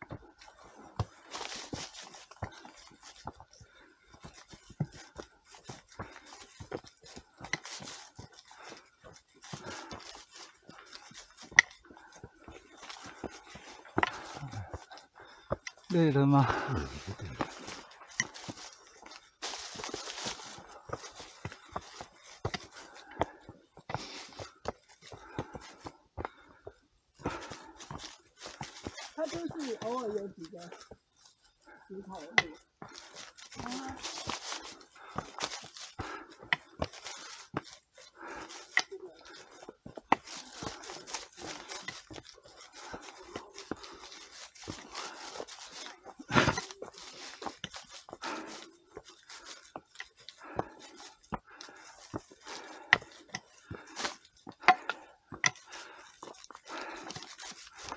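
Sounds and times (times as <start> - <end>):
footsteps on stony trail: 0.0 - 57.9
rustling noise: 15.8 - 23.2, 27.2 - 57.9.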